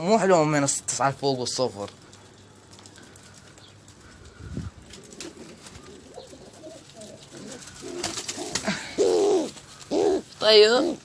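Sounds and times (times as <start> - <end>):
pigeons cooing: 3.0 - 11.0.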